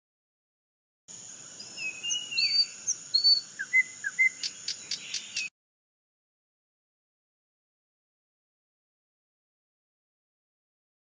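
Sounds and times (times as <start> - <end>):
sharp bird chirps: 1.1 - 5.5
birds whistling sliding notes: 1.6 - 5.5.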